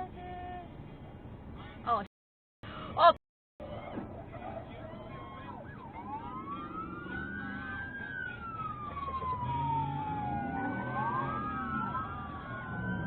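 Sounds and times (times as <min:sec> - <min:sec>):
vehicle rumble: 0:00.0 - 0:02.1, 0:02.7 - 0:13.0
sirens wailing: 0:03.6 - 0:13.0.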